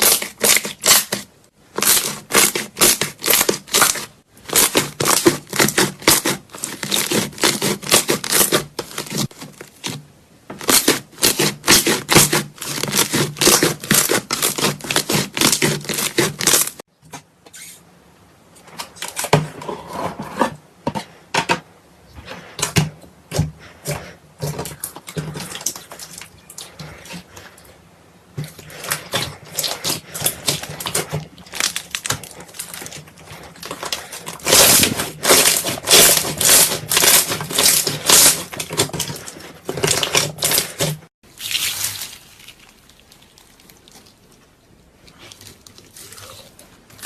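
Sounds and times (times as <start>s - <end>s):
slime squeezed by hand: 41.3s - 44.4s.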